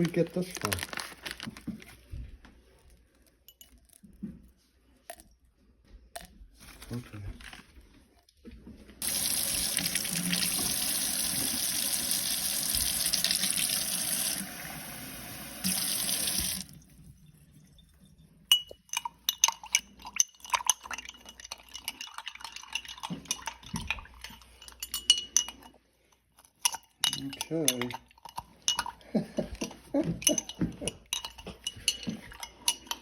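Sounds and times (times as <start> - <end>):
tap water running into sink: 9.0 - 16.8
utensils clinking on glassware: 18.4 - 33.0.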